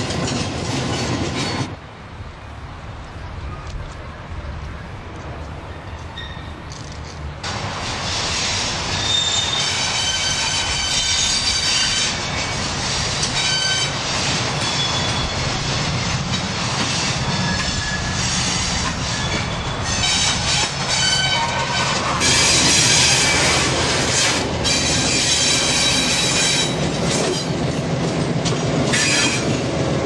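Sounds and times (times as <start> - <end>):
low rumble of moving train: 0.0 - 30.0
train wheels squealing: 5.7 - 6.6, 8.1 - 15.8, 16.8 - 27.6, 28.9 - 29.6.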